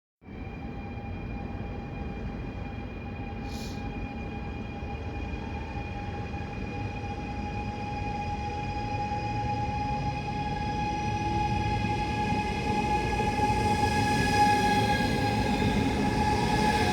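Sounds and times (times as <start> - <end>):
train rumble: 0.4 - 16.9
high whine of held tones: 6.6 - 16.9.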